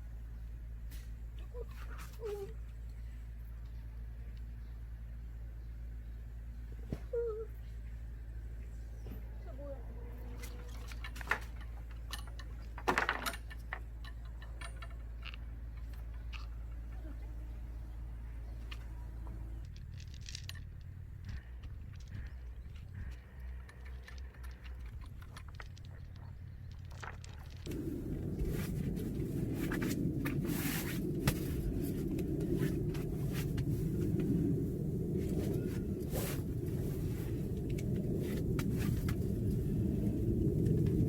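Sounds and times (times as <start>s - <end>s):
small clicks and crackles: 10.3s - 17.3s, 18.5s - 41.0s
steady low hum: 13.4s - 41.0s
low rumble: 14.2s - 41.0s
clicks of small hard objects: 18.6s - 27.8s.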